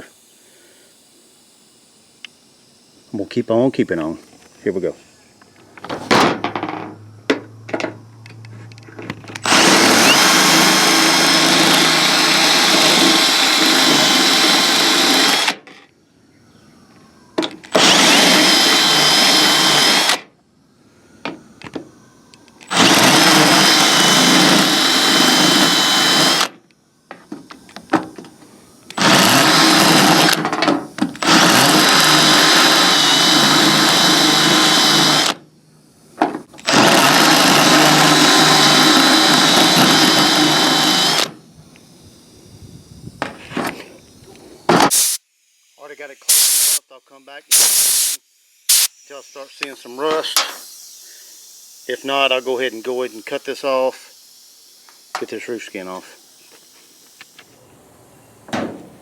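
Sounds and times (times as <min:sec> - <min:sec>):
power drill cutting steel: 0:09.4 - 0:15.6, 0:17.7 - 0:20.3, 0:22.7 - 0:26.6, 0:28.9 - 0:35.4, 0:36.6 - 0:41.4, 0:47.5 - 0:49.2, 0:49.8 - 0:57.4.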